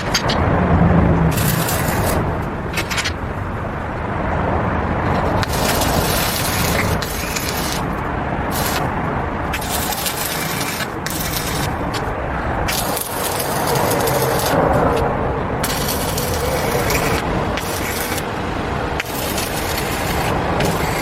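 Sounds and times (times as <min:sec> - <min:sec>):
arc welding crackling hiss: 0:01.3 - 0:02.9, 0:05.2 - 0:12.1, 0:12.7 - 0:15.0, 0:15.6 - 0:18.3, 0:18.9 - 0:21.0.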